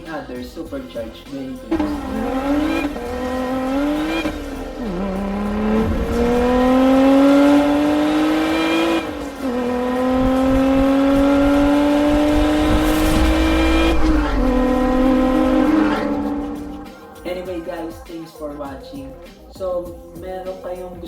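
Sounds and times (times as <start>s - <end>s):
car engine accelerating: 1.7s - 17.2s.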